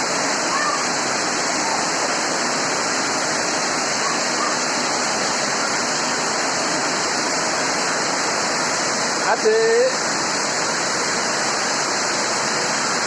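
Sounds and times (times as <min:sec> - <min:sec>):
rain pouring down: 0:00.0 - 0:13.0.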